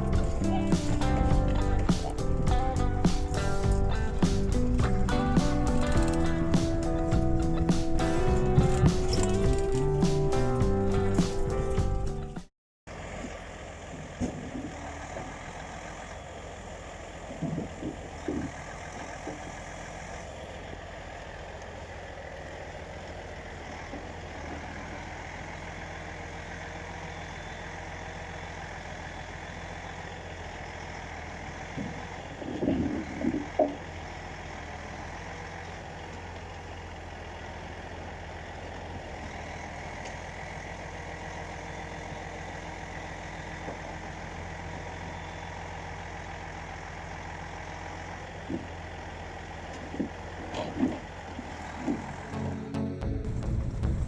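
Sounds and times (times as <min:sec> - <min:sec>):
clunks and knocks: 0:00.0 - 0:12.3, 0:14.0 - 0:15.5, 0:17.2 - 0:19.5, 0:31.7 - 0:33.8, 0:48.4 - 0:48.8, 0:49.7 - 0:52.4
diesel truck engine idling: 0:00.0 - 0:54.0.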